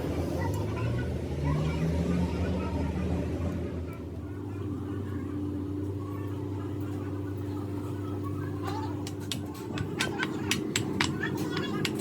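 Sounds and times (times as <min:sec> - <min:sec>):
metal-on-metal taps: 0:09.0 - 0:12.0.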